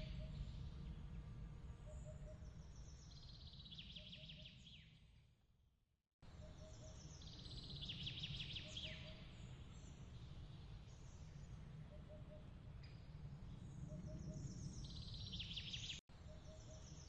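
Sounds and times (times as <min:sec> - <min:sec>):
low steady rumble: 0:00.0 - 0:03.5.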